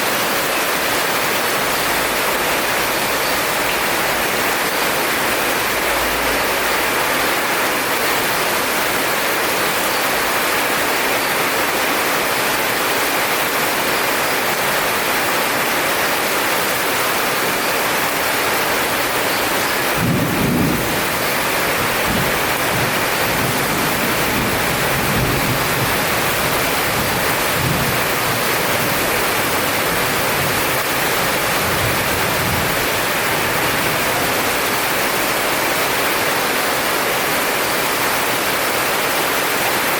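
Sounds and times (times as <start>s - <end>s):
heavy rain falling: 0.0s - 39.9s
thunder rumble: 19.9s - 28.1s.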